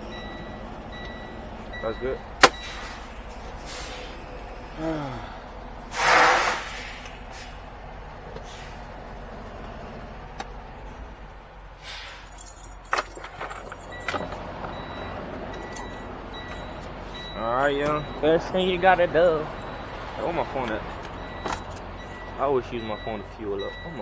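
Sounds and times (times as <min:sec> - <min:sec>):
truck engine idling: 0:00.0 - 0:24.0
air brake hiss: 0:02.4 - 0:04.3, 0:05.9 - 0:07.7, 0:08.4 - 0:08.9, 0:11.8 - 0:12.3.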